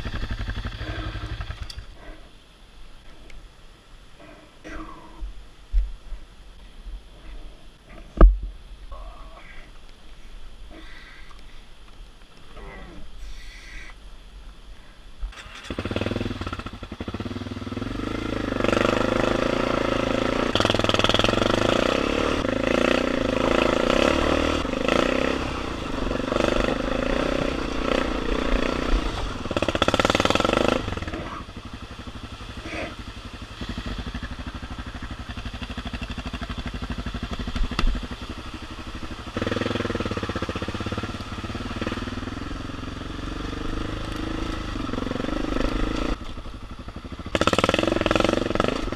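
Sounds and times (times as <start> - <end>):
motorcycle engine under load: 0.0 - 2.0, 15.3 - 48.9.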